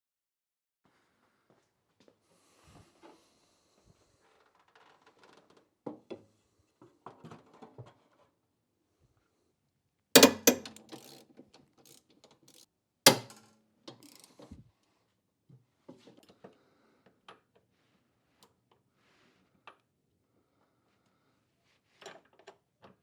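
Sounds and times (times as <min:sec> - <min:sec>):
metal clicking: 0:10.2 - 0:11.2
sharp metal clanks: 0:10.2 - 0:11.2, 0:13.1 - 0:13.4
socket wrench ratcheting: 0:10.2 - 0:13.4, 0:14.0 - 0:14.4.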